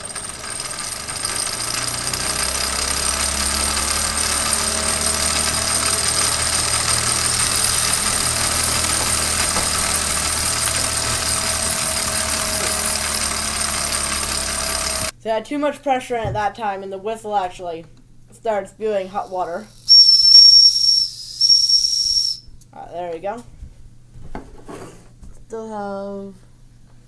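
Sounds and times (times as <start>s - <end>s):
steam whistle blowing loudly: 19.9s - 22.4s.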